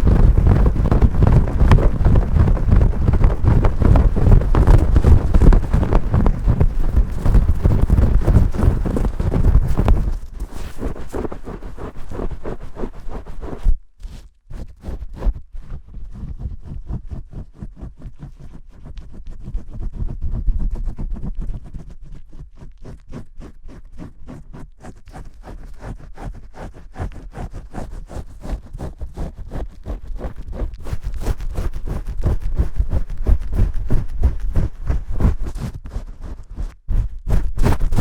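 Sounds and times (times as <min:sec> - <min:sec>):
fingers scrubbing shampoo lather: 0:00.0 - 0:13.6.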